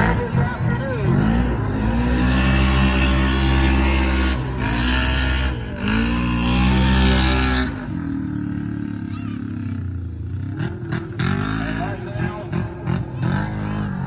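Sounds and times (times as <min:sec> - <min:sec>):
racing engine at high revs: 0:00.0 - 0:14.0.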